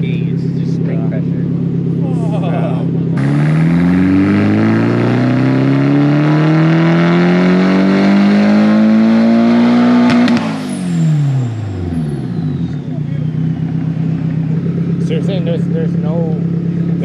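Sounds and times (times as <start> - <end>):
turbocharged car engine revving: 0.0 - 17.0
exhaust pops: 9.9 - 17.0.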